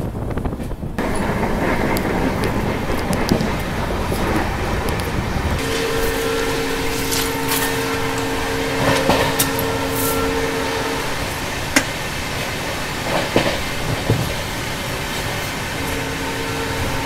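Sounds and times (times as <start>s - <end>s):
train running on rails: 0.0s - 17.0s
wheels clicking on track: 0.0s - 17.0s
steady two-note tone: 5.6s - 12.2s, 15.8s - 17.0s.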